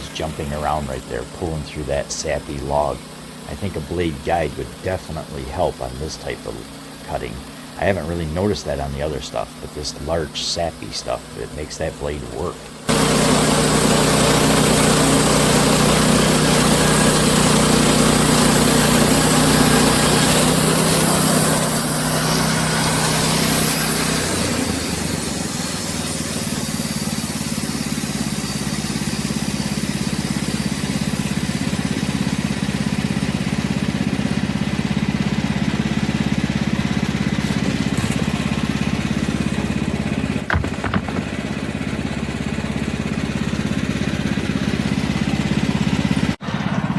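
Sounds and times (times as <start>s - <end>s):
band sawmill cutting log: 0.0s - 46.9s
short knocks: 40.5s - 41.5s.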